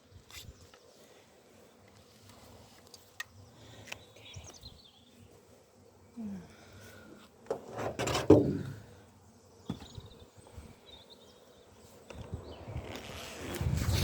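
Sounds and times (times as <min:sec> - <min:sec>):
wooden hive parts scraping: 0:07.4 - 0:08.8, 0:11.9 - 0:14.0.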